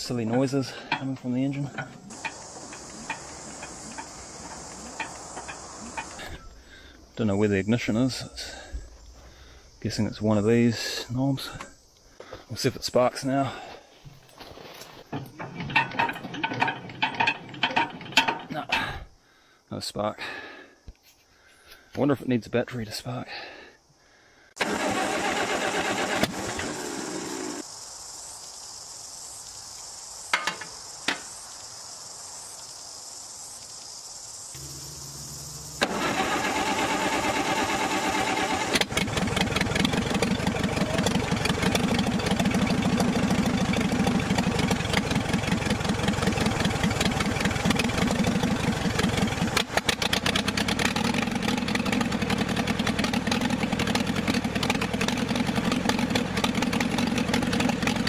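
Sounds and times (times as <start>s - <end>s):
tractor engine cranking and running: 0.0s - 6.6s, 14.0s - 19.0s, 24.6s - 27.6s, 34.6s - 58.0s
starter clicks: 0.9s - 6.4s, 35.8s - 42.0s.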